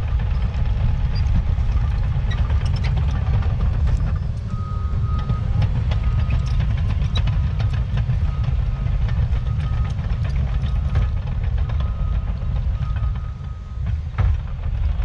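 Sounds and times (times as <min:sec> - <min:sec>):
diesel engine running: 0:00.0 - 0:15.0
reversing alarm beeping: 0:04.1 - 0:13.9.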